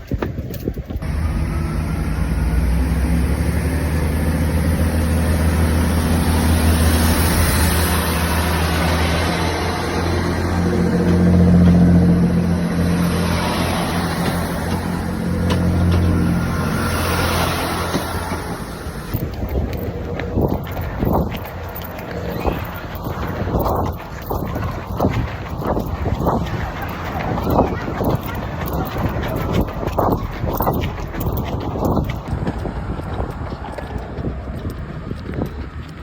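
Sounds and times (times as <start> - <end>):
diesel train engine droning: 1.0 - 36.0.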